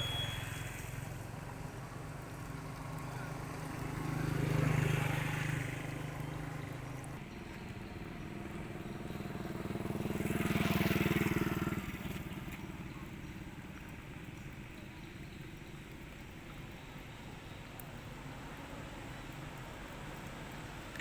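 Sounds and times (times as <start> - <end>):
vehicle engine droning past: 0.0 - 14.8.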